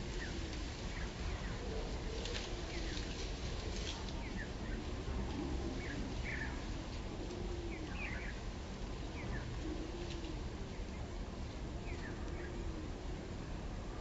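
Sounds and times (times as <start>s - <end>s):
small birds chirping: 4.0s - 4.9s, 5.7s - 6.7s, 11.8s - 12.6s.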